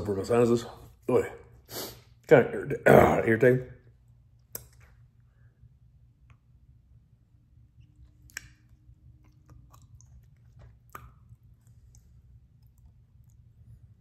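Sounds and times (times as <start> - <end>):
wet mouth clicks and smacks: 4.3 - 5.0, 7.8 - 13.5.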